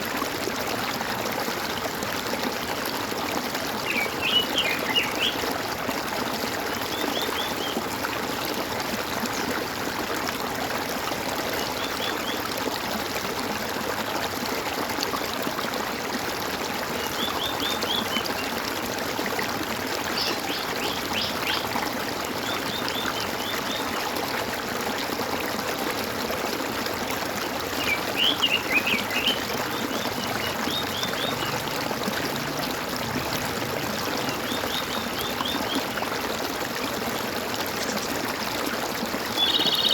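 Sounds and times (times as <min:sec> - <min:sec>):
water gurgling and trickling: 0:00.0 - 0:39.9
songbird chirping: 0:39.4 - 0:39.9.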